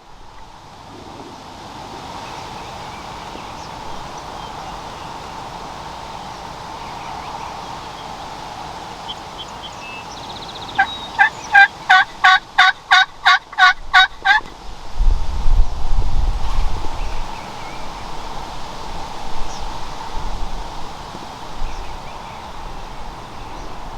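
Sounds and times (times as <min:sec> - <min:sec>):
wild turkey yelping: 0:10.7 - 0:14.5.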